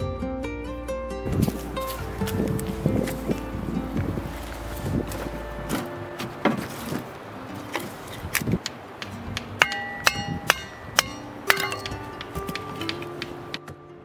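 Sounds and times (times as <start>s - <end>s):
light background music: 0.0s - 14.0s
hatchet knocking on kindling: 8.4s - 13.6s.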